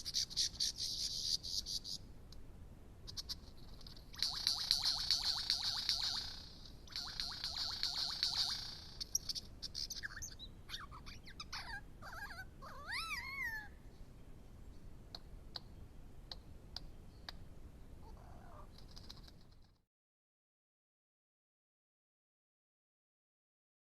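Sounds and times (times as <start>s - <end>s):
sharp bird clicks: 3.1s - 11.5s, 15.1s - 17.5s, 18.1s - 19.8s
bird whistled song: 4.1s - 12.2s.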